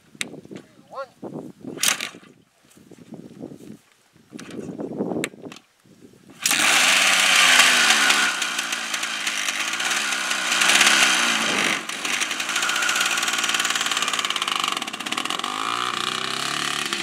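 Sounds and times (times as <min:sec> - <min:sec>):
dirt bike engine revving: 0:06.4 - 0:17.0.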